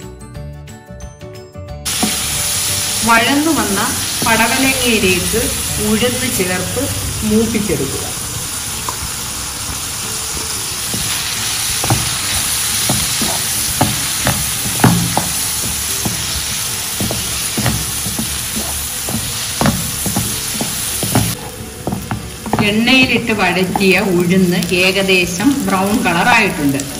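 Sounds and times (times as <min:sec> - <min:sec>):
vegetables sizzling in oil: 0:01.9 - 0:26.9
wooden spatula scraping a pan: 0:10.9 - 0:24.2.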